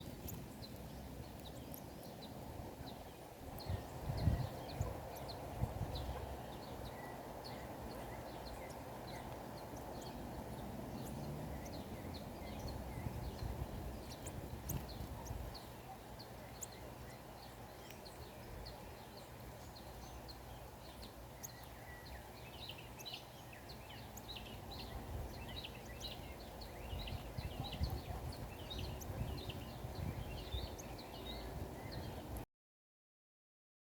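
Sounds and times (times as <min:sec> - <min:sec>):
small birds chirping: 0:00.0 - 0:32.4.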